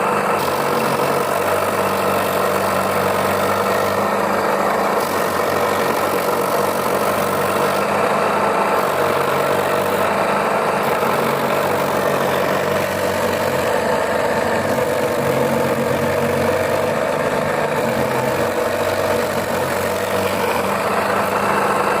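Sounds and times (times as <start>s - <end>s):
grating machine motor hum: 0.0s - 22.0s.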